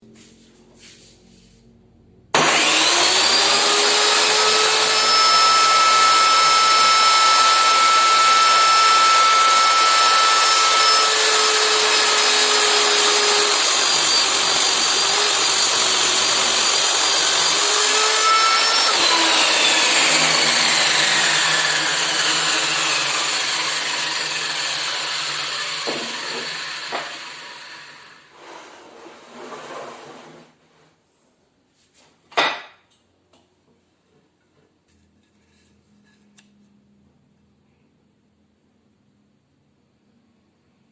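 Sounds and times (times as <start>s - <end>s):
table saw whine: 2.3s - 29.7s.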